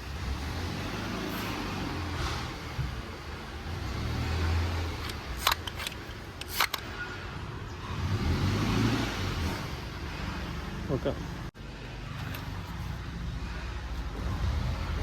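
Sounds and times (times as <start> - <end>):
car engine revving: 0.0 - 6.0, 7.8 - 11.5
sharp clicks: 5.0 - 6.9.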